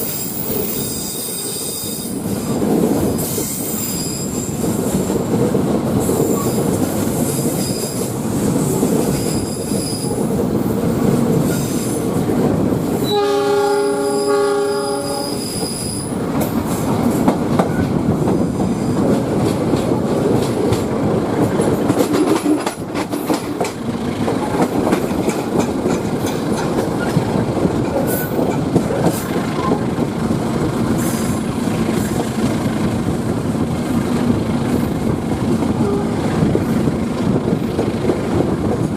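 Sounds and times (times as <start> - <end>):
train rumble and rattle: 0.0 - 38.9
wheel squeal: 3.3 - 4.6, 7.4 - 8.1, 9.2 - 10.2, 15.0 - 16.2
locomotive horn: 13.0 - 16.0, 35.8 - 36.3.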